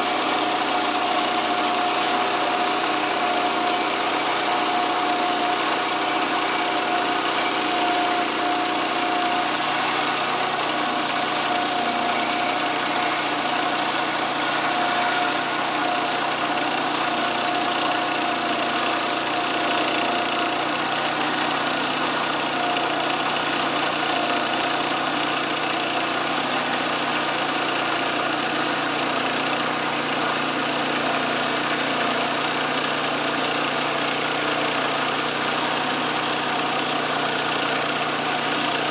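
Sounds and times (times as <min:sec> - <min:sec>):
small gasoline engine running: 0:00.0 - 0:38.9.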